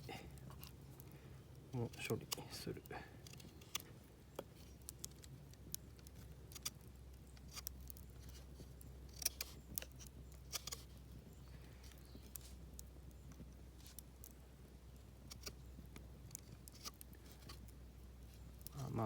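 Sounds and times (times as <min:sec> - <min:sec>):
knife shaving wood: 0:01.8 - 0:05.3, 0:06.0 - 0:11.0, 0:15.2 - 0:19.0.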